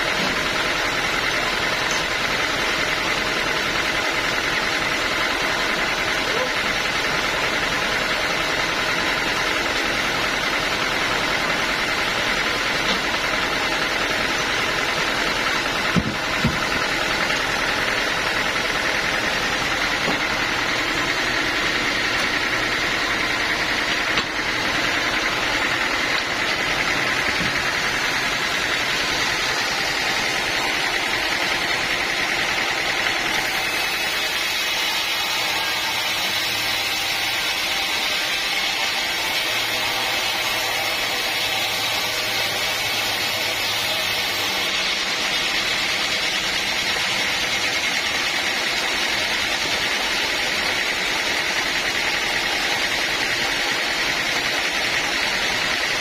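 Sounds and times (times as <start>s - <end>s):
sawmill machinery drone: 0.0s - 56.0s.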